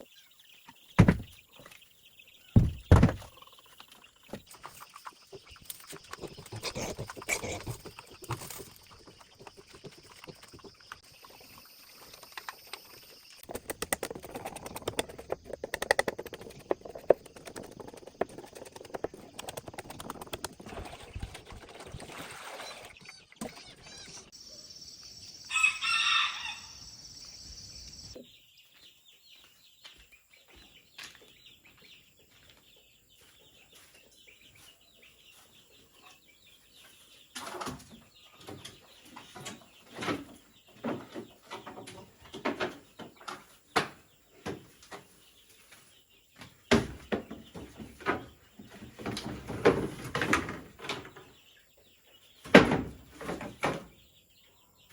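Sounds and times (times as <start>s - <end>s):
knocking: 1.0s - 1.4s, 2.6s - 3.3s
loud thumps: 1.0s - 1.4s, 2.6s - 3.3s
rooster crowing: 25.5s - 26.8s.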